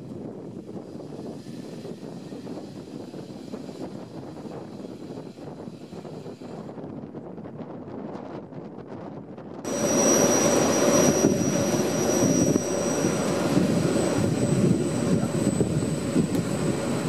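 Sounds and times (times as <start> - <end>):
train wheels rumbling on rails: 0.0 - 17.0
rushing air: 9.7 - 17.0
thin high whines: 9.7 - 17.0.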